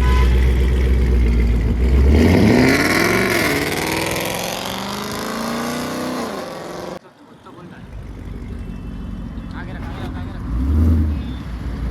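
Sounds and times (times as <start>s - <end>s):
car exhaust revving: 0.0s - 7.0s, 10.4s - 11.9s.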